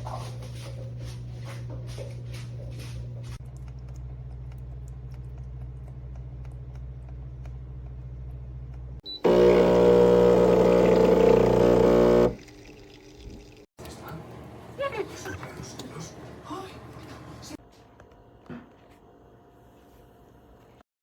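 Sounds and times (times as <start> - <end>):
espresso machine pump buzzing: 9.2 - 12.4.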